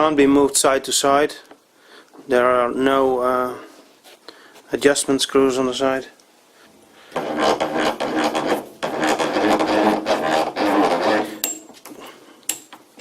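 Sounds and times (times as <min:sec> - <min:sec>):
dry metal parts grinding: 0:07.2 - 0:11.7.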